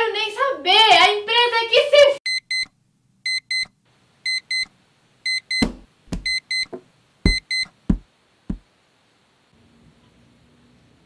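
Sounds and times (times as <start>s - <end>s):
alarm clock beeping: 2.3s - 2.7s, 3.3s - 3.7s, 4.3s - 4.7s, 5.3s - 6.7s, 7.3s - 7.7s
dull thumps: 5.6s - 8.7s.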